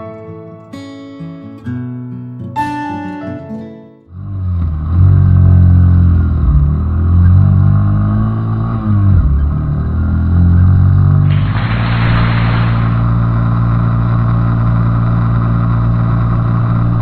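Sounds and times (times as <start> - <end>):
hiss: 11.3 - 13.5.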